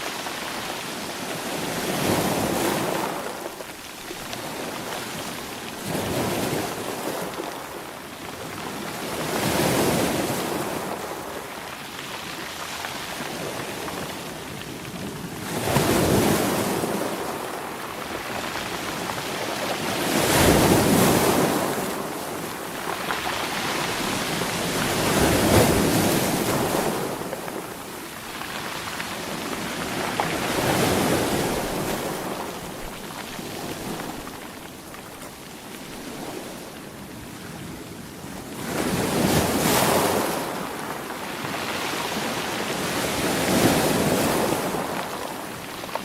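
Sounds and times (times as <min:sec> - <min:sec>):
ocean waves breaking: 0:15.4 - 0:46.0.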